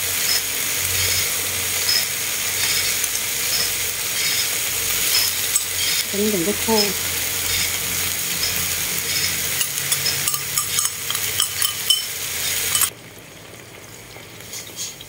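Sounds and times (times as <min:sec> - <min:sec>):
oil crackling: 0:00.0 - 0:13.0
food sizzling in a frying pan: 0:00.0 - 0:15.0
spoon clinking on ceramic bowl: 0:09.6 - 0:12.9.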